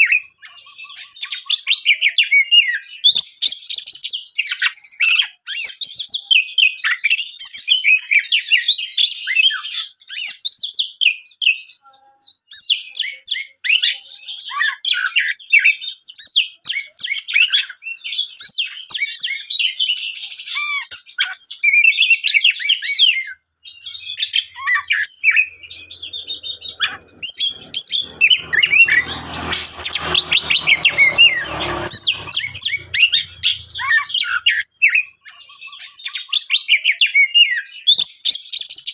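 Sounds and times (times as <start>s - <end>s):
low hum: 25.4s - 34.2s.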